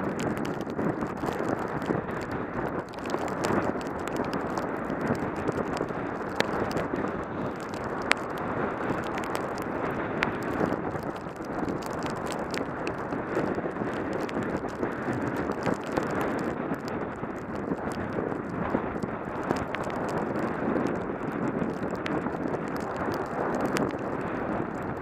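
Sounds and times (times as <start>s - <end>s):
bicycle tyres rushing through snow: 0.0s - 25.0s
small clicks and knocks: 0.1s - 6.9s, 7.5s - 18.1s, 19.4s - 24.1s.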